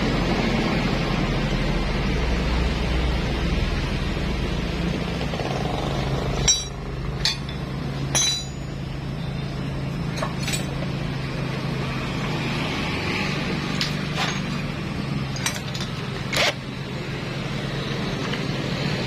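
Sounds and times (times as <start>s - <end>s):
metal tools clinking: 6.4s - 8.8s, 10.1s - 10.9s, 13.7s - 14.7s, 15.3s - 16.6s.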